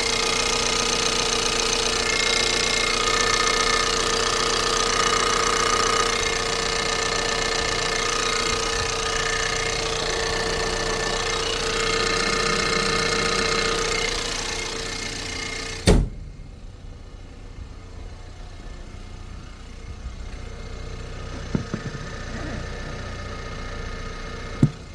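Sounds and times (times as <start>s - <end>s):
car engine idling: 0.0s - 24.9s
sharp engine knock: 21.4s - 22.0s.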